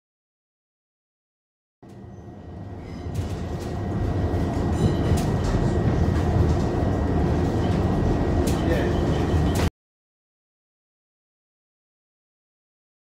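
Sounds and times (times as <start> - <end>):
train rumbling: 1.8 - 9.7.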